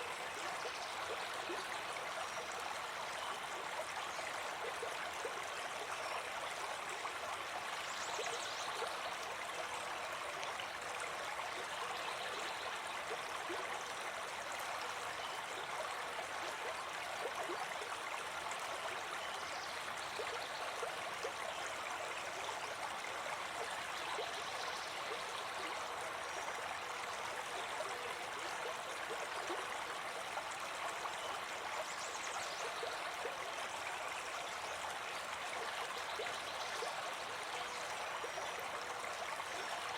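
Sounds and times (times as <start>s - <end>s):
brook babbling: 0.0s - 39.9s.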